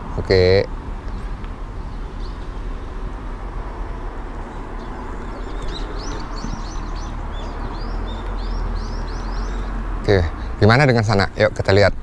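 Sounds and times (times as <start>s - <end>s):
low outdoor rumble: 0.0s - 12.0s
small birds chirping: 1.0s - 3.0s, 3.8s - 11.2s.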